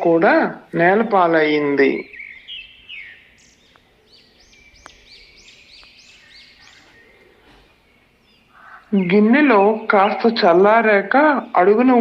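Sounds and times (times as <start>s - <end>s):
small birds chirping: 0.0s - 12.0s
faint clicks: 4.8s - 5.0s.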